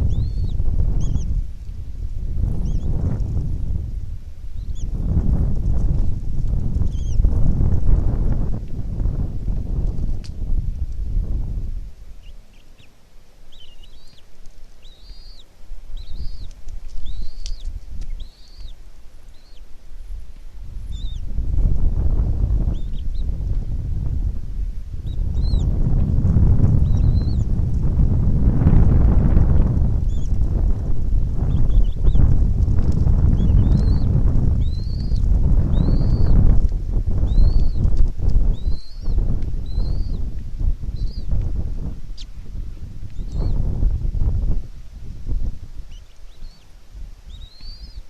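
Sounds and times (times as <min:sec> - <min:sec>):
bird chirping calls: 0:00.0 - 0:01.4, 0:02.6 - 0:02.9, 0:06.8 - 0:07.3, 0:12.2 - 0:19.7, 0:20.8 - 0:21.3, 0:25.0 - 0:25.7, 0:26.8 - 0:27.5, 0:30.0 - 0:30.4, 0:31.4 - 0:32.3, 0:33.3 - 0:36.4, 0:37.2 - 0:37.9, 0:38.5 - 0:40.2, 0:40.9 - 0:41.3, 0:45.9 - 0:46.7, 0:47.3 - 0:48.0
eagle chick peeping: 0:00.0 - 0:01.7, 0:02.4 - 0:03.8, 0:04.5 - 0:24.2, 0:25.0 - 0:42.4, 0:43.0 - 0:44.5, 0:45.8 - 0:46.7, 0:47.3 - 0:48.0
wind rumbling on microphone: 0:00.0 - 0:48.0.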